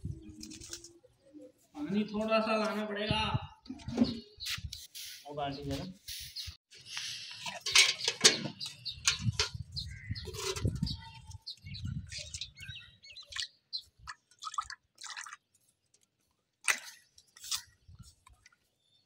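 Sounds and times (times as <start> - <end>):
small birds chirping: 3.6 - 16.0
water splashing: 13.1 - 15.5.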